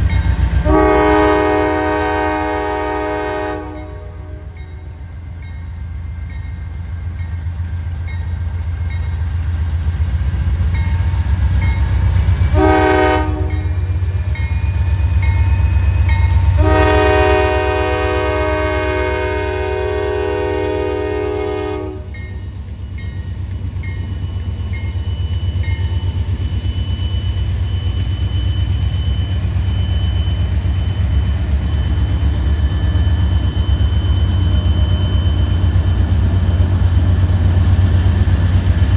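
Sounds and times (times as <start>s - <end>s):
crossing bell dinging: 0.0s - 1.1s, 3.7s - 7.4s, 10.7s - 17.8s, 22.0s - 36.4s
diesel locomotive rumble: 0.0s - 38.9s
train air horn blasts: 0.6s - 4.6s, 12.5s - 13.9s, 16.5s - 22.2s.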